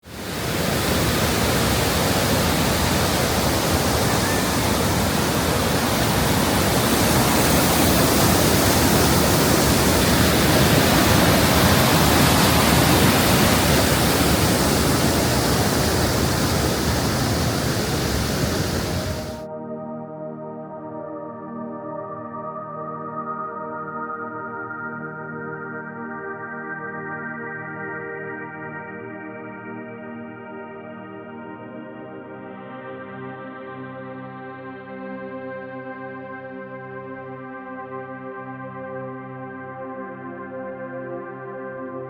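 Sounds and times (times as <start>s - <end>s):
waterfall rushing: 0.1s - 19.4s.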